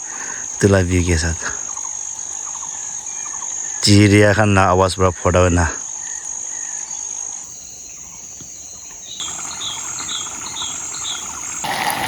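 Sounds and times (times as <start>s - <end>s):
insects droning: 0.0s - 12.0s
steady hiss: 7.5s - 12.0s.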